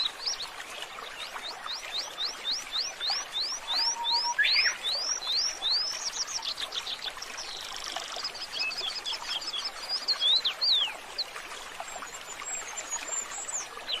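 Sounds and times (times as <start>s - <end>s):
small birds chirping and trilling: 0.0s - 11.3s, 11.9s - 14.0s.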